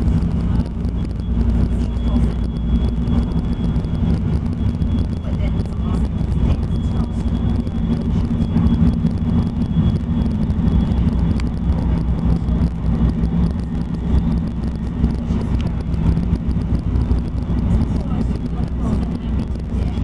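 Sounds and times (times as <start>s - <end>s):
light-rail car engine drone: 0.0s - 20.0s.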